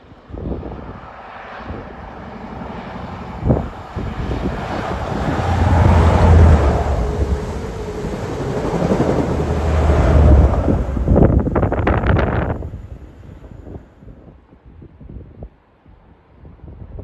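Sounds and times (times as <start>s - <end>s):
diesel engine hum: 1.5s - 13.5s
wheel-on-rail running noise: 2.3s - 12.8s.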